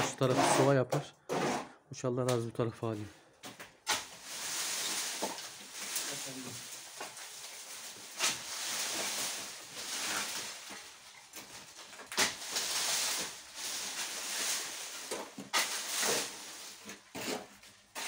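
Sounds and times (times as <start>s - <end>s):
brush rustling and crackling: 3.9s - 18.0s.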